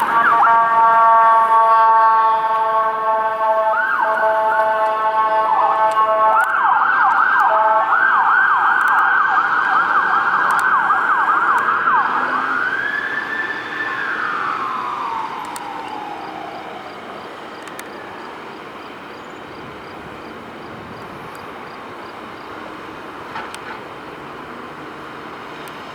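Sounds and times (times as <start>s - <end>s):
horn blast: 0.0s - 6.4s
emergency siren yelping: 0.0s - 19.2s.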